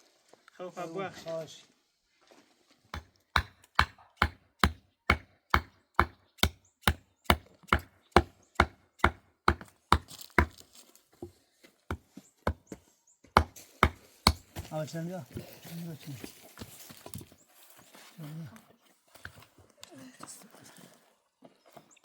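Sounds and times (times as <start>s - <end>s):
hand tool striking: 3.0s - 10.6s, 13.4s - 14.7s.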